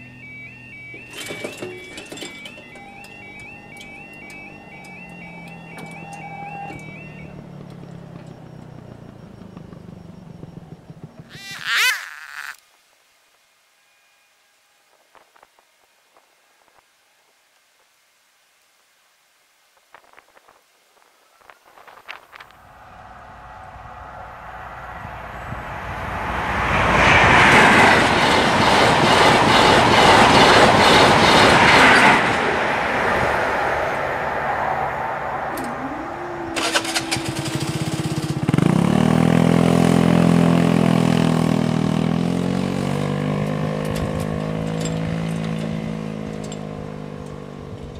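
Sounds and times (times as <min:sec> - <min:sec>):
crossing barriers whining: 0:00.0 - 0:12.6, 0:21.4 - 0:47.9
scooter engine pulling away: 0:00.0 - 0:12.6, 0:35.4 - 0:47.9
train wheels rushing on rail: 0:23.0 - 0:35.8.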